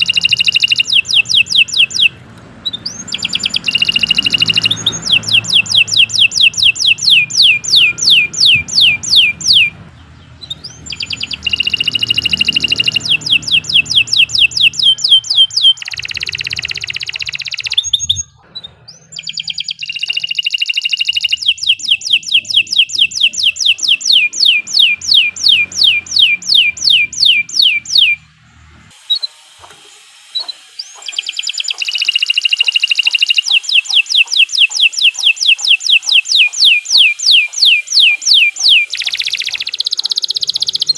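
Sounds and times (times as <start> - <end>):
canary singing: 0.0 - 29.5, 30.1 - 40.9.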